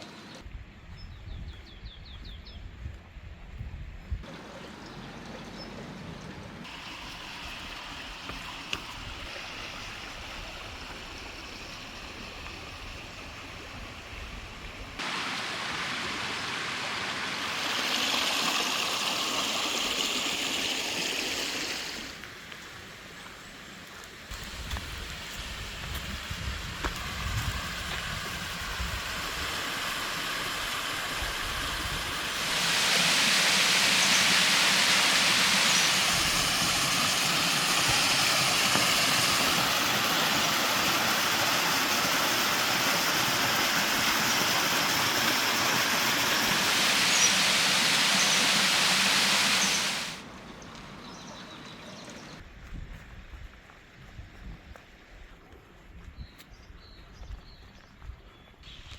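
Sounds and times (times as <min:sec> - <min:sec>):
stream and waterfall rushing: 0:06.6 - 0:23.2, 0:24.3 - 0:51.0.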